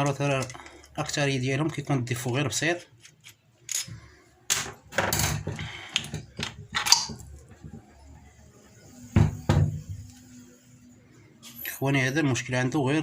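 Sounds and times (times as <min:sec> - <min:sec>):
metal parts clinking and scraping: 0:03.0 - 0:05.4.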